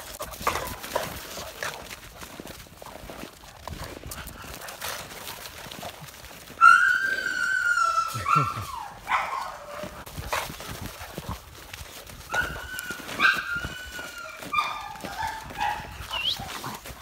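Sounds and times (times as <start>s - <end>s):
dogs scuffling: 0.0s - 17.0s
dog whining and yelping: 6.5s - 10.0s, 12.3s - 16.8s.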